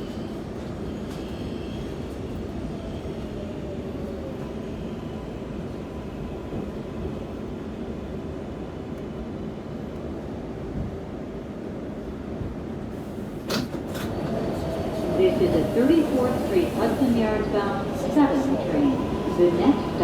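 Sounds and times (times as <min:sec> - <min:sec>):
subway car ventilation hum: 0:10.7 - 0:20.0.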